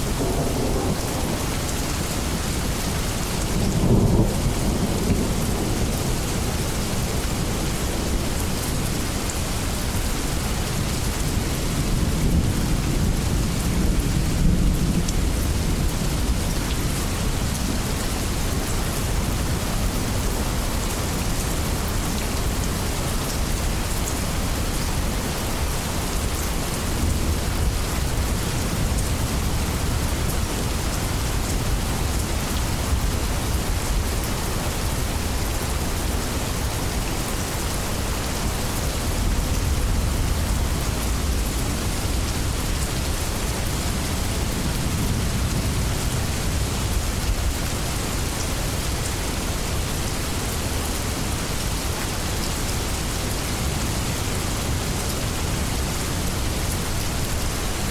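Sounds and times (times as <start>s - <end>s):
distant thunder rumbling: 0.0s - 2.8s
heavy rain on leaves: 0.0s - 57.9s.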